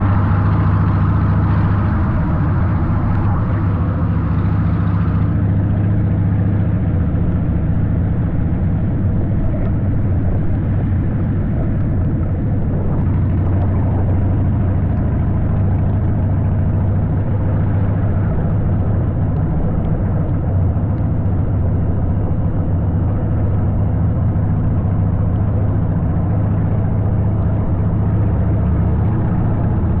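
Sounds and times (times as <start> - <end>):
engine droning: 0.0 - 30.0.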